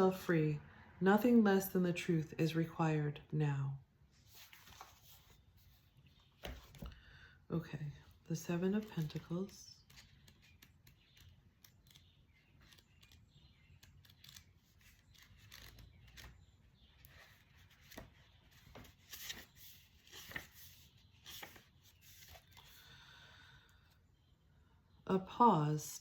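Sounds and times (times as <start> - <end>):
paper rustling: 4.2 - 7.0, 8.8 - 16.4, 17.0 - 22.8.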